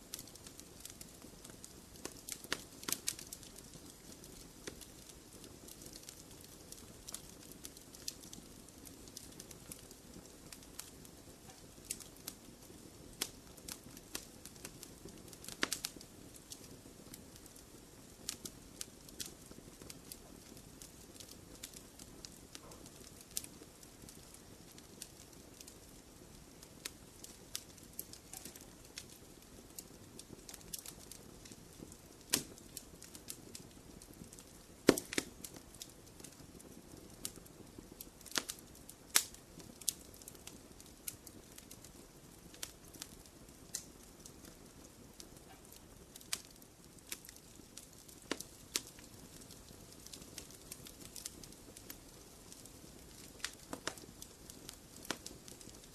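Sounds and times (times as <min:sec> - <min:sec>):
low rush of flames: 0:00.0 - 0:55.9
wood fire crackling: 0:00.0 - 0:55.9
sharp fire pops: 0:00.1 - 0:41.8, 0:45.4 - 0:51.9, 0:52.6 - 0:55.9.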